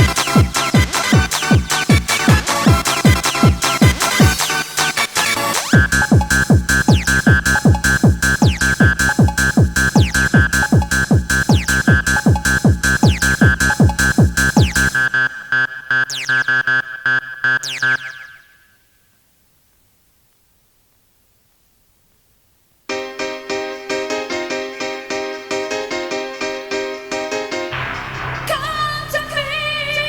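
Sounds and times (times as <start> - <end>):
pounding kick drum: 0.0 - 4.4, 5.8 - 15.0, 27.8 - 28.6
repeating high synth riff: 13.0 - 18.7.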